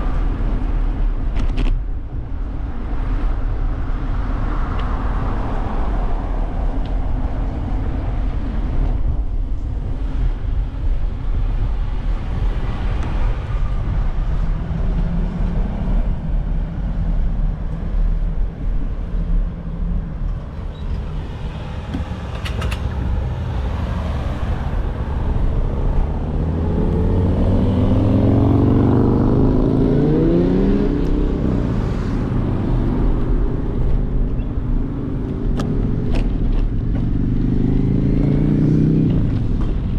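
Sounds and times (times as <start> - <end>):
road traffic rumble: 0.0 - 39.9
vehicle engine revving: 20.8 - 39.9.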